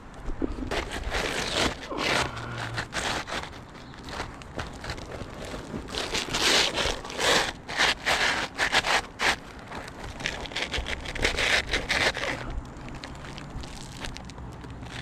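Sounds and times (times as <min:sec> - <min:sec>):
scraping on roof shingles: 0:00.5 - 0:12.5.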